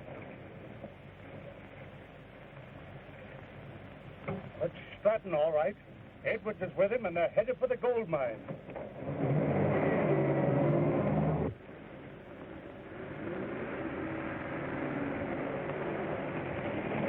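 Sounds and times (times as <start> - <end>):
quieter engine sound: 0.0 - 17.0
car engine running: 8.6 - 17.0.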